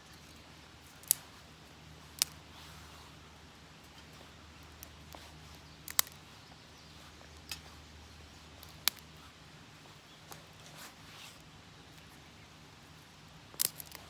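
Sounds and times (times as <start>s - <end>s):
dry twigs cracking: 0.1s - 2.8s, 4.6s - 6.4s, 8.6s - 9.2s, 13.5s - 14.0s.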